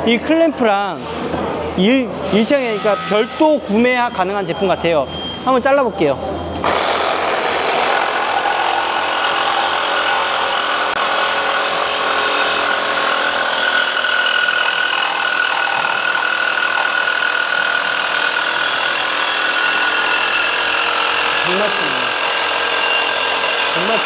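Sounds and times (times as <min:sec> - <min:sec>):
saw whine: 0:02.3 - 0:24.0
power saw cutting: 0:02.4 - 0:03.8, 0:06.6 - 0:24.0.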